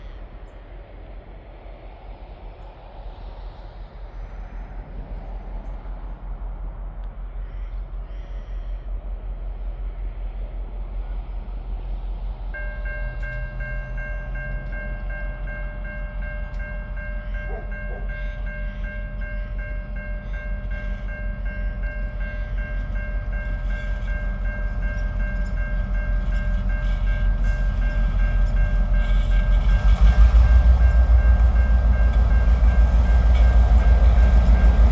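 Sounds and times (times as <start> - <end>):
diesel locomotive engines rumbling: 0.0 - 34.9
level crossing warning bells: 12.6 - 34.9.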